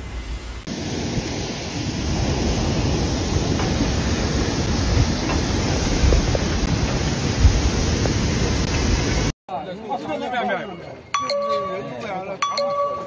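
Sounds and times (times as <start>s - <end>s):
faint storm hiss: 0.0s - 9.3s
heavy rain on flooded street: 0.7s - 9.3s.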